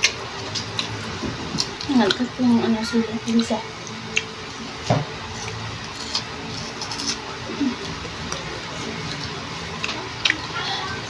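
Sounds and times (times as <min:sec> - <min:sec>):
crunchy chewing: 0:05.3 - 0:10.6.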